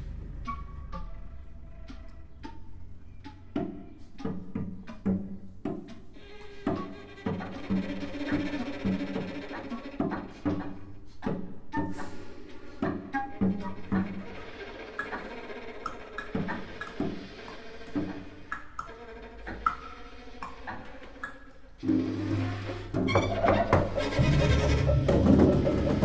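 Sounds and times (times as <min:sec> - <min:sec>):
held low instrumental tones: 0:00.0 - 0:05.7, 0:21.8 - 0:26.0
sharp percussive strikes: 0:21.8 - 0:26.0.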